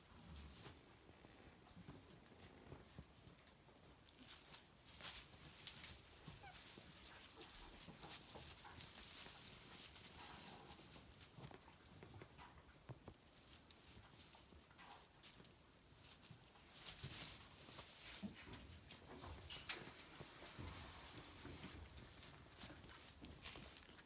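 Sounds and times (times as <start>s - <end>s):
light rustling: 13.1s - 24.0s.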